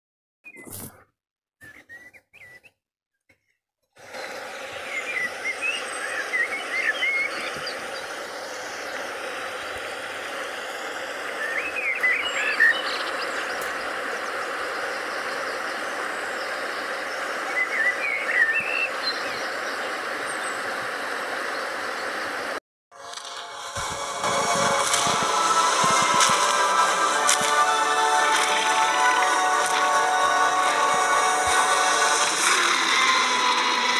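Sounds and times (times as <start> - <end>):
small birds chirping: 0.4 - 22.4
steady background hiss: 23.3 - 32.7.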